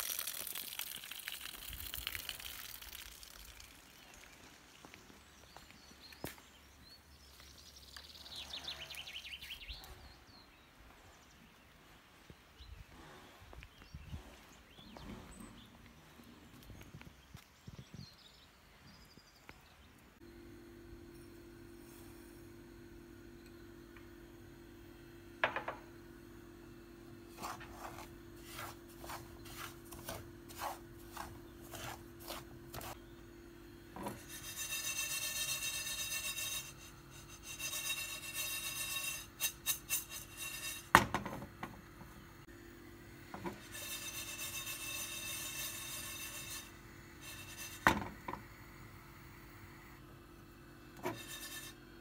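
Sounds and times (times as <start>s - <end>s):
scraping and rubbing strokes: 27.2s - 33.0s, 34.0s - 41.0s, 43.3s - 48.4s, 51.0s - 52.0s.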